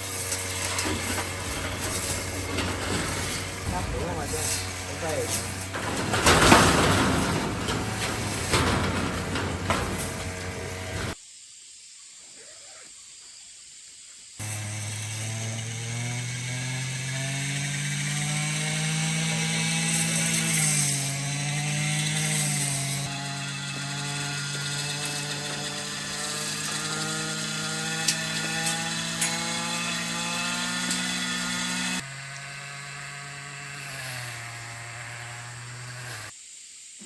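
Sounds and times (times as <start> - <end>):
small motor humming: 14.4 - 36.6.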